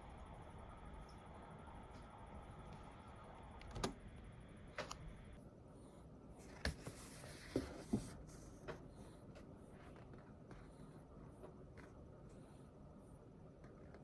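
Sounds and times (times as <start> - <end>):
faint room hiss: 0.0 - 14.0.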